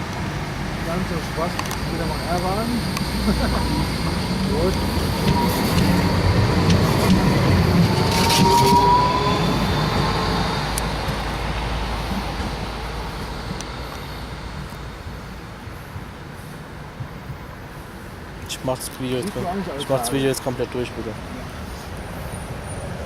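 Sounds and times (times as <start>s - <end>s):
tram rolling past: 0.0s - 23.0s
faint wheel squeal: 1.9s - 11.2s.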